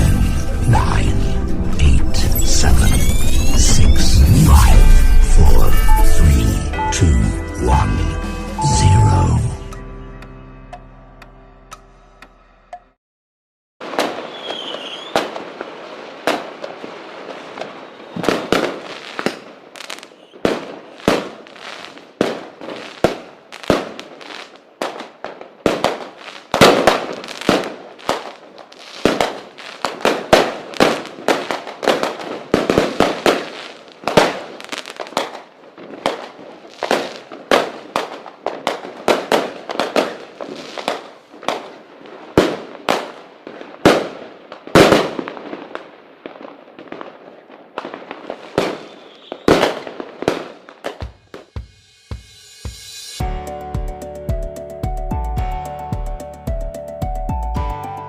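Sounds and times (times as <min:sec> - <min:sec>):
fireworks bangs and crackles: 0:00.0 - 0:06.5, 0:13.8 - 0:52.9
firework whistle: 0:02.3 - 0:07.0, 0:08.5 - 0:09.5, 0:14.2 - 0:15.4, 0:17.6 - 0:21.0, 0:48.6 - 0:49.8.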